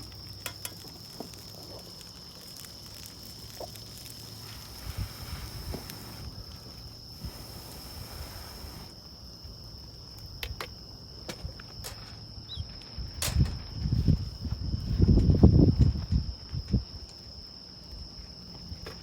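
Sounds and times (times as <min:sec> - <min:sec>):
insect trilling: 0:00.0 - 0:09.4.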